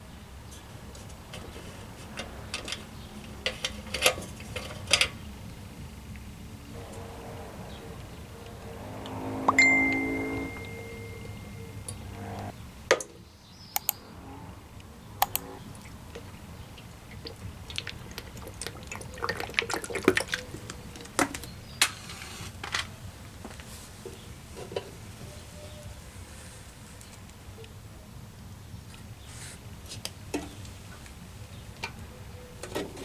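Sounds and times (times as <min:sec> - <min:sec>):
low steady hum: 0:05.9 - 0:12.6
sharp clicks and light taps: 0:13.7 - 0:14.0, 0:15.2 - 0:15.5.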